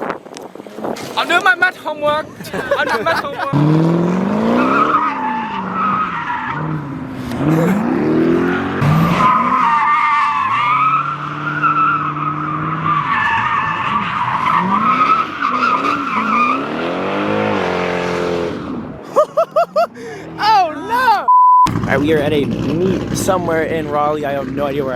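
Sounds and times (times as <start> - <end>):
tires squealing: 0.5 - 21.1
car engine revving: 3.4 - 19.0, 21.7 - 24.8.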